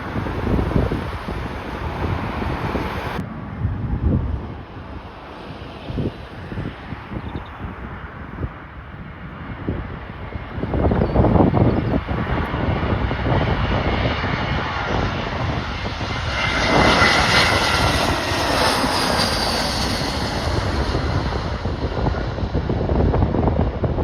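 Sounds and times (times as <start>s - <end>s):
gusty wind on microphone: 0.0s - 24.0s
jet airliner engines whining: 0.0s - 24.0s.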